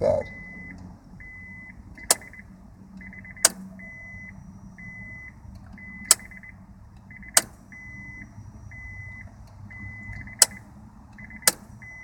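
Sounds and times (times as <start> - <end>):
solenoid clicking: 2.0 - 2.4, 3.4 - 3.6, 5.6 - 6.5, 7.2 - 7.6, 11.2 - 11.9.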